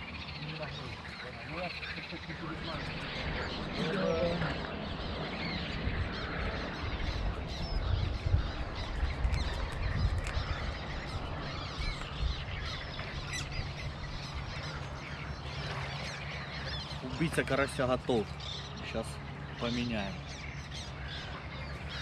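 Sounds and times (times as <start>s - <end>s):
many birds chirping: 0.0s - 22.0s
low rumble: 2.3s - 17.0s.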